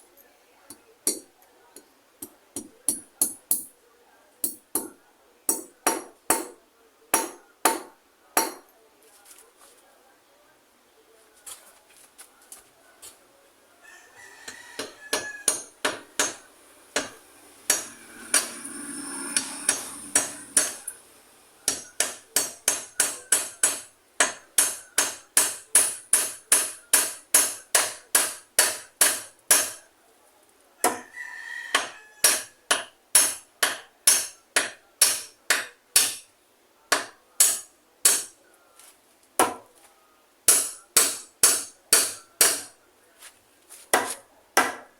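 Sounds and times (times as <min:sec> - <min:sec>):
hammer blows: 0:14.8 - 0:29.8.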